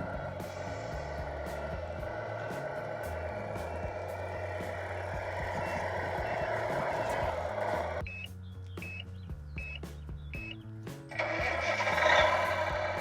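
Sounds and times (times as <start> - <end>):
background music: 0.0 - 13.0
reversing beeper high beeps: 8.0 - 9.8.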